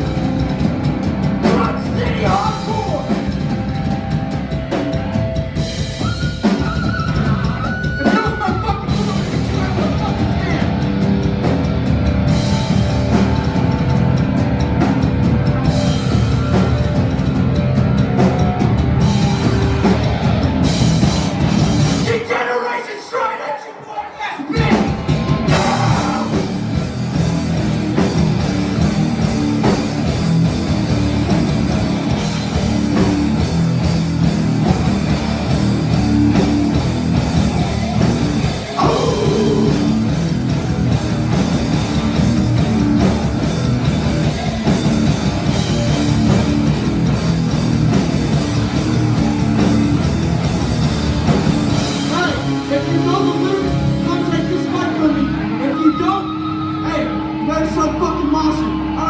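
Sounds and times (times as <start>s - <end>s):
punk band playing: 0.0s - 22.8s, 24.0s - 59.0s
vocals: 1.3s - 4.1s, 6.0s - 11.4s, 21.9s - 27.0s, 37.9s - 40.9s, 51.9s - 59.0s.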